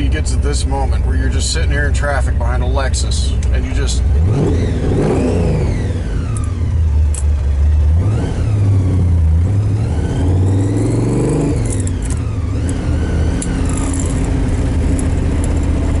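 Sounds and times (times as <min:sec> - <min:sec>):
supercharged engine revving: 0:03.8 - 0:16.0
supercharger blower whine: 0:04.0 - 0:16.0.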